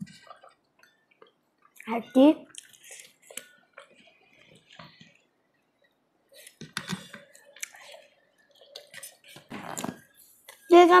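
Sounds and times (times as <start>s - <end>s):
chewing and mouth clicks: 2.5s - 4.8s, 7.4s - 8.0s.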